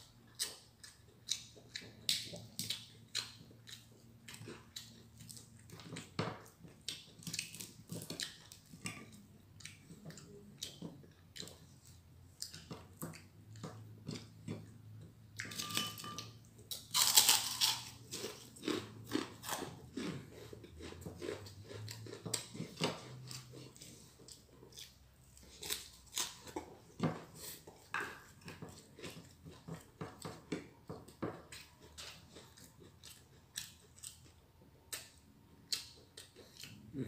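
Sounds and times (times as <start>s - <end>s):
person chewing and crunching: 0.0s - 37.0s.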